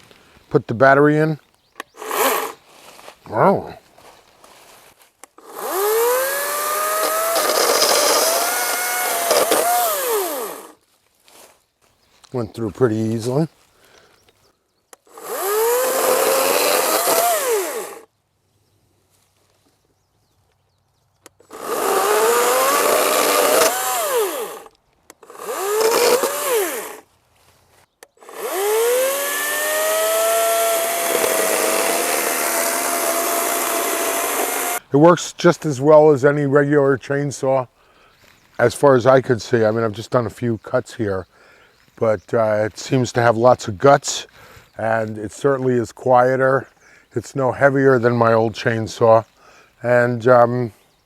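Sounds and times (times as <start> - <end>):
electric chainsaw motor whining: 1.9 - 2.6, 5.3 - 10.8, 15.1 - 18.1, 21.3 - 27.1, 28.1 - 34.9
chain rasping through wood: 2.0 - 2.6, 5.4 - 10.8, 15.1 - 18.0, 21.4 - 27.0, 28.2 - 34.8.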